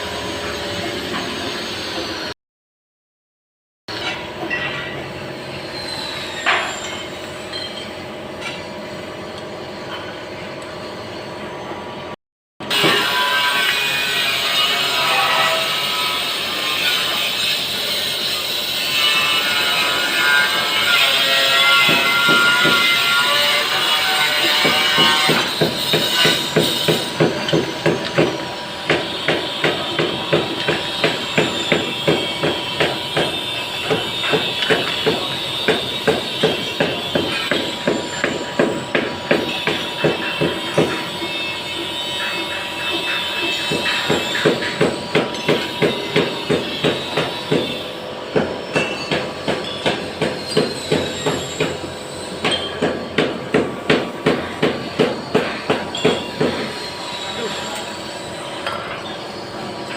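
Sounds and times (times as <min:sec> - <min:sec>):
hammer striking: 0:12.6 - 0:14.2, 0:19.1 - 0:56.8.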